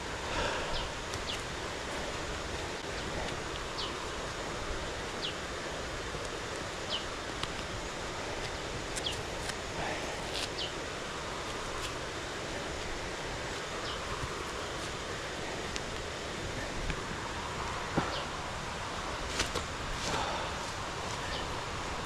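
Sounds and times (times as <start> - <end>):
rushing background noise: 0.0 - 22.0
bird calling: 18.0 - 18.4, 20.1 - 21.7.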